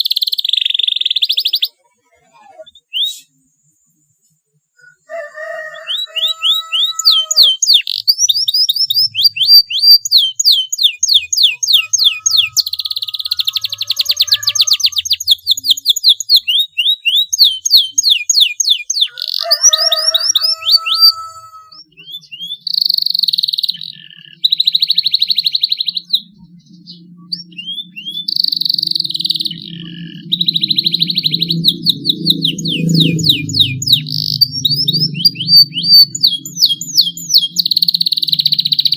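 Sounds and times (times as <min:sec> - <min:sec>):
canary singing: 0:00.0 - 0:38.9
low rumble: 0:29.4 - 0:37.6.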